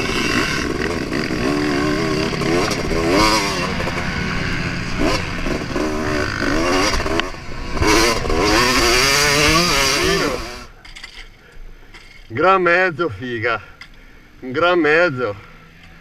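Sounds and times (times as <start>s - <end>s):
two-stroke motocross engine revving: 0.0s - 10.7s.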